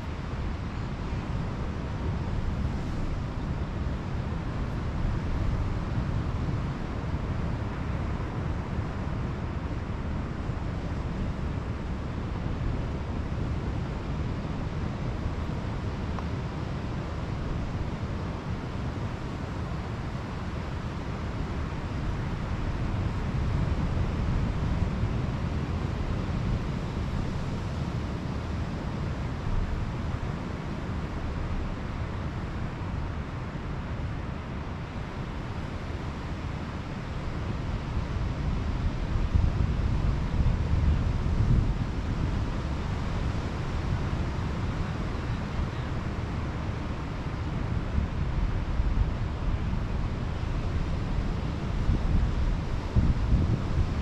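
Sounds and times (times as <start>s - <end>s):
wind buffeting microphone: 47.2s - 54.0s.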